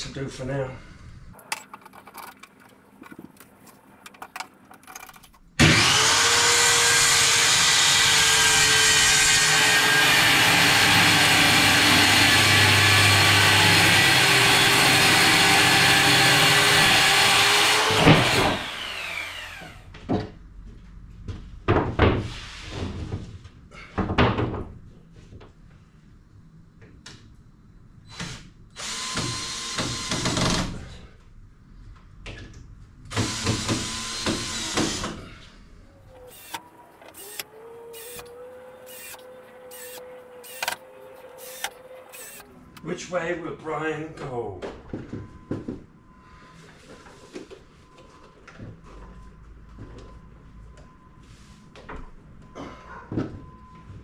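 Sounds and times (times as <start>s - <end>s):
circular saw cutting plywood: 5.6s - 19.8s, 36.2s - 42.5s
small power tool bursts: 36.2s - 40.8s, 41.4s - 42.4s.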